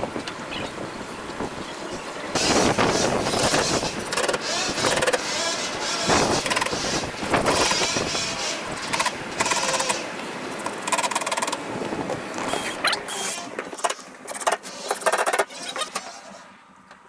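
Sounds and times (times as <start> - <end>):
high buzzing rattle: 2.4 - 11.6
power tool motor running: 2.4 - 11.6.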